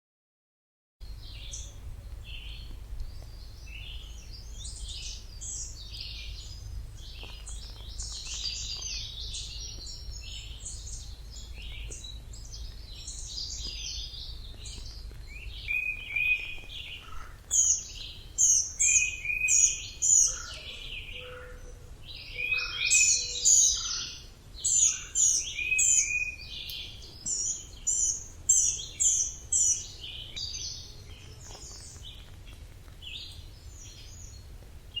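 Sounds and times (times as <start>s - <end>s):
low background rumble: 1.0s - 22.6s
loud bird song phrase: 1.0s - 35.0s
songbirds chirping and singing: 1.0s - 35.0s.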